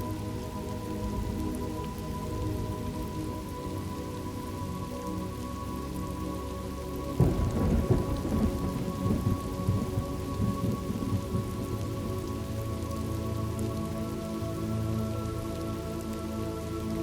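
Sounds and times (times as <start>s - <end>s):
steady rain: 0.0s - 17.0s
thunder clap and rumbling: 7.2s - 11.8s.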